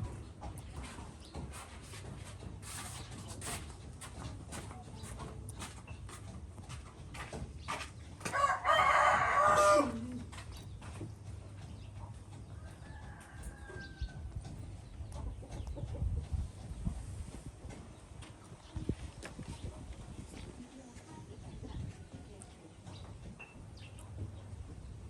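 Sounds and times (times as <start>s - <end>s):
rooster crowing: 8.3s - 10.2s, 12.6s - 14.2s.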